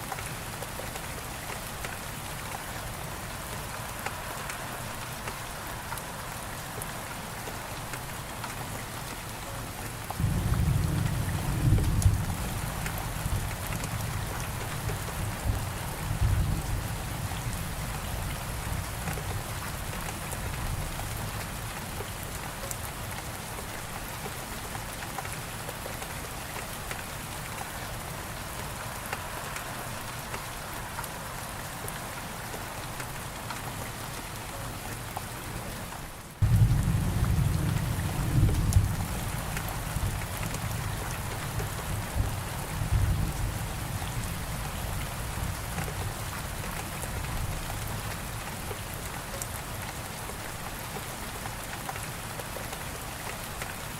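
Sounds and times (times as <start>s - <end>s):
rolling thunder rumbling: 10.2s - 14.4s, 36.4s - 44.4s.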